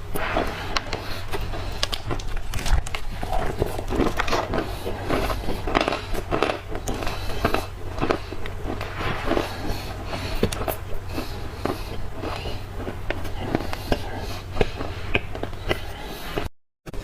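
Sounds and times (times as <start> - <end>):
crunchy chewing of dry clay: 0.0 - 17.0.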